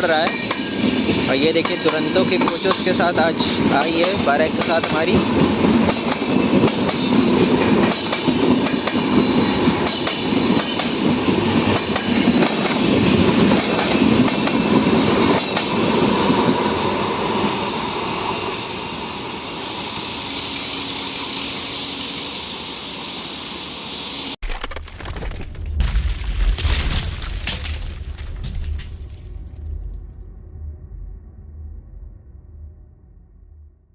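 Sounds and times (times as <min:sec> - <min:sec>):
train rolling past: 0:00.0 - 0:24.4.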